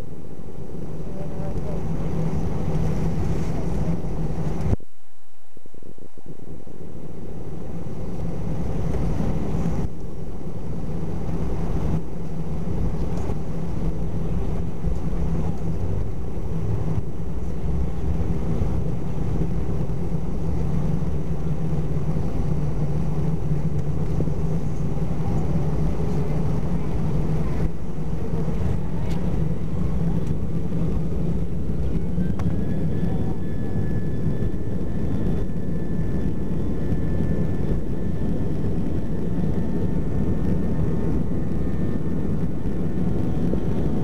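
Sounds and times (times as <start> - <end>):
airplane cabin engine rumble: 0.0 - 44.0.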